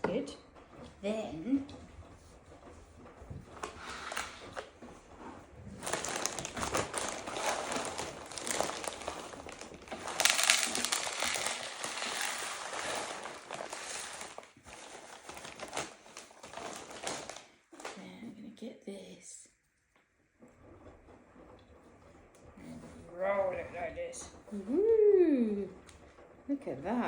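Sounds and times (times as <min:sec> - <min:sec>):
pinecone crunching through birdseed: 0:05.9 - 0:17.5.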